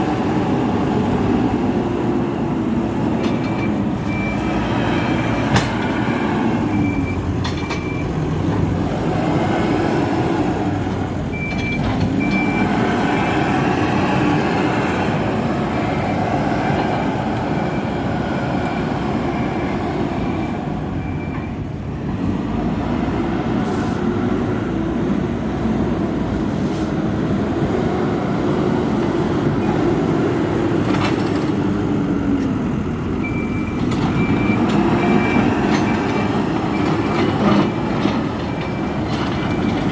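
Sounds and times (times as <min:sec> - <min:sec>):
diesel engine under load: 0:00.0 - 0:39.9
reversing alarm beeping: 0:02.3 - 0:08.2, 0:11.3 - 0:14.8, 0:17.5 - 0:21.7, 0:33.1 - 0:39.9.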